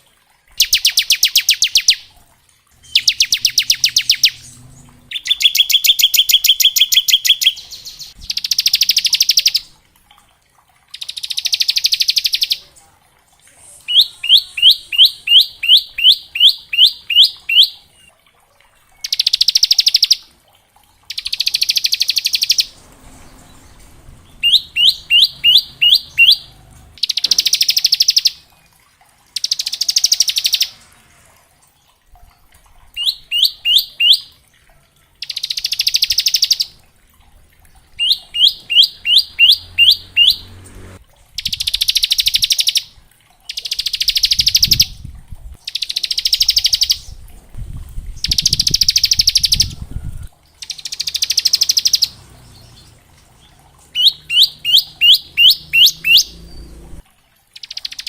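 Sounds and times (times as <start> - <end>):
bird whistled notes: 2.8 - 9.6, 13.8 - 17.8, 24.4 - 28.3, 38.0 - 40.5.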